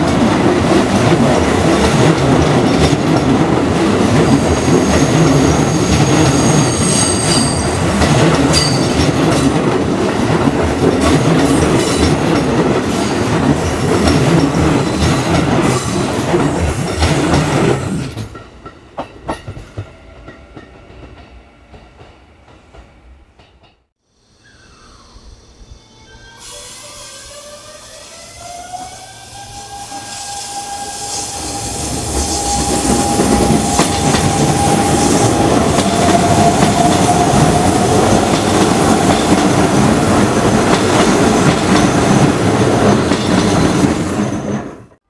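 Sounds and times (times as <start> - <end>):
train wheels rumbling and rattling: 0.0 - 23.9, 30.8 - 45.0
high wheel squeal: 4.6 - 7.8, 24.2 - 38.0.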